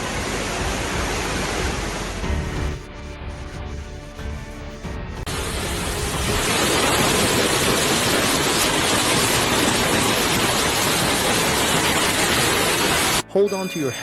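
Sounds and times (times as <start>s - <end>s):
loud rushing noise: 5.3s - 13.2s.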